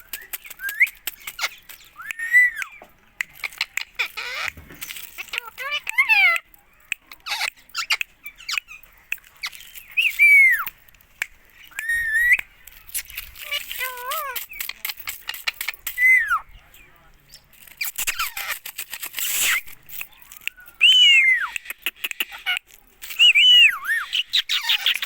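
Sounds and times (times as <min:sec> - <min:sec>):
parakeet squawking and chattering: 0:00.0 - 0:10.7, 0:11.8 - 0:16.4, 0:17.8 - 0:25.0
sharp clicks: 0:00.0 - 0:16.0.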